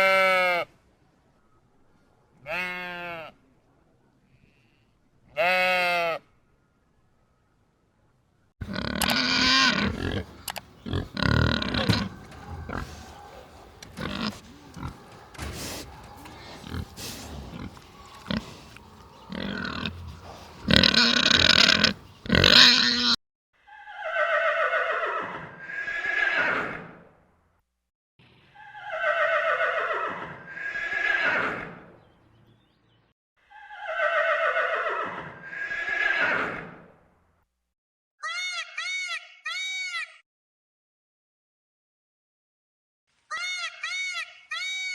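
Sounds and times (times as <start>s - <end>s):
pigs grunting: 8.6s - 23.2s.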